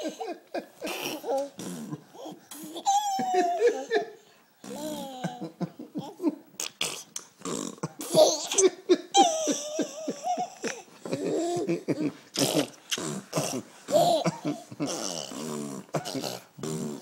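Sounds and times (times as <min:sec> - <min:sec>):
baby laughing: 0:02.2 - 0:06.7, 0:08.0 - 0:12.8, 0:13.9 - 0:15.3.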